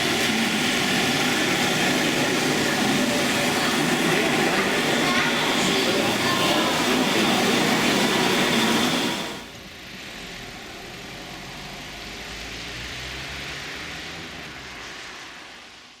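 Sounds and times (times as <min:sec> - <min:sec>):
busy hall noise: 0:00.0 - 0:09.8.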